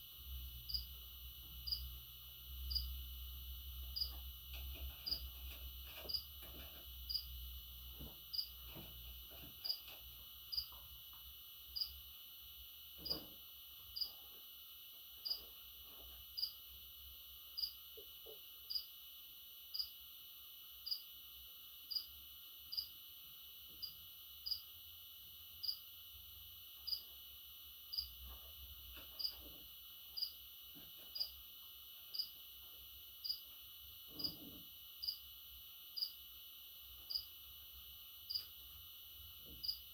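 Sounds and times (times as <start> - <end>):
insect chirping: 0.6 - 1.0, 1.6 - 3.1, 3.8 - 4.2, 7.1 - 7.4, 8.3 - 8.6, 9.6 - 10.8, 11.7 - 12.2, 13.9 - 14.4, 15.2 - 15.5, 16.4 - 19.0, 19.7 - 20.2, 20.8 - 21.2, 21.9 - 23.1, 23.8 - 24.8, 25.6 - 26.0, 26.8 - 27.2, 27.8 - 28.2, 29.2 - 29.4, 30.0 - 30.5, 31.1 - 31.4, 32.0 - 32.5, 33.2 - 39.0, 39.6 - 39.9.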